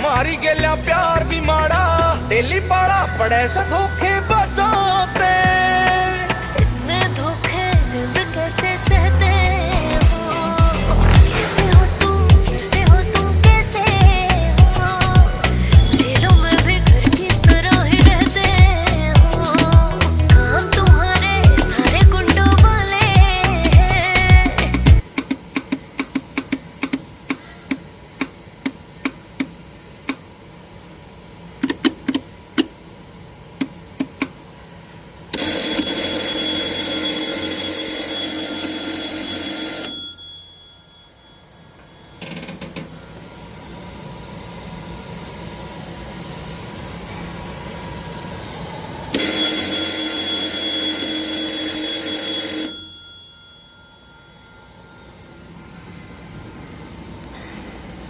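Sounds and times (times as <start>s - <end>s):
steady hum: 0.0s - 37.1s, 40.1s - 52.0s, 52.6s - 58.0s
electric alarm ringing: 11.1s - 24.6s, 35.4s - 42.8s, 49.1s - 56.4s.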